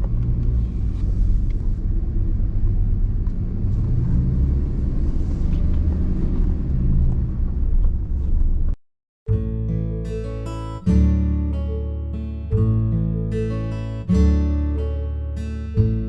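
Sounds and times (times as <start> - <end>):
truck engine and tyres rumbling: 0.0 - 8.8.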